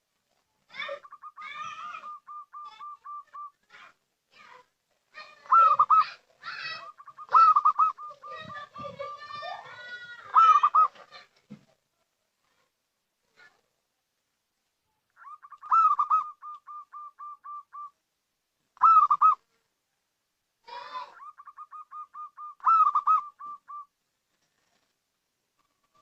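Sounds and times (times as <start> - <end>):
dove cooing: 0.7 - 3.6, 5.2 - 9.0, 10.3 - 11.2, 15.2 - 18.0, 18.8 - 19.4, 20.8 - 23.9.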